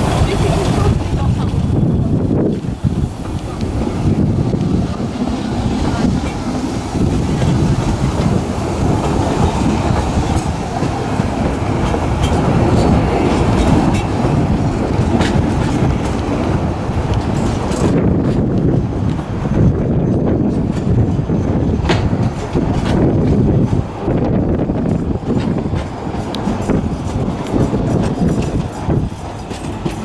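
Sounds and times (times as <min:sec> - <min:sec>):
train running with steady rumble: 0:00.0 - 0:30.0
sharp clicks of wheels on track: 0:02.5 - 0:19.3.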